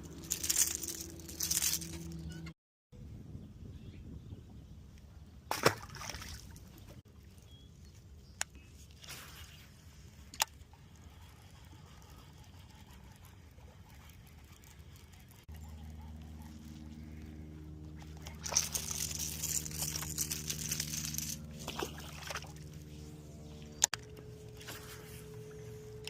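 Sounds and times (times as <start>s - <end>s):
water sloshing and splashing: 5.5s - 7.4s, 18.0s - 25.2s
low steady rumble: 9.6s - 26.0s.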